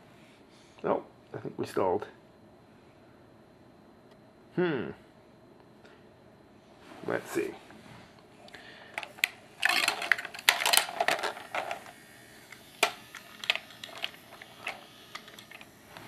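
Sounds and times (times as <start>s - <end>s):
plastic toy truck clicking and rattling: 9.0s - 11.9s.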